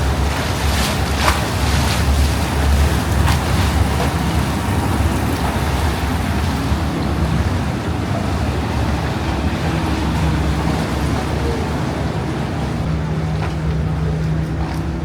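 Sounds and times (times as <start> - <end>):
faint motorboat engine hum: 0.0 - 15.0
water washing: 0.0 - 15.0
wind: 0.0 - 15.0.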